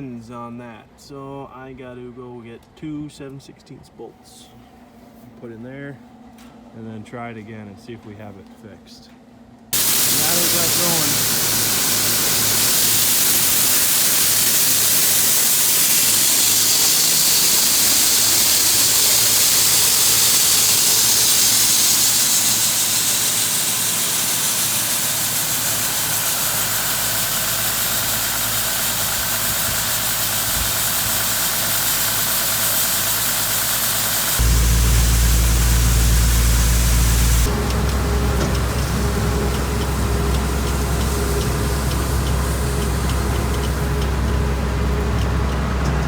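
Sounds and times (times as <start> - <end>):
machinery high hiss: 9.8 - 45.8
pulsing engine hum: 9.8 - 46.0.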